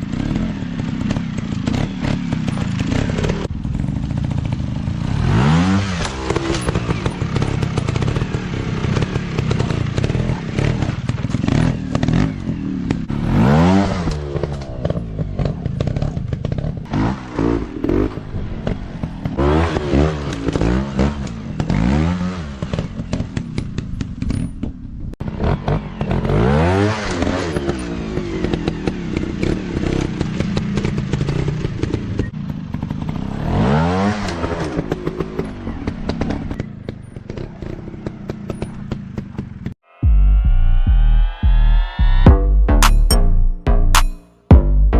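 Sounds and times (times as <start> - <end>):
dirt bike engine revving: 0.0 - 23.2, 25.2 - 32.1.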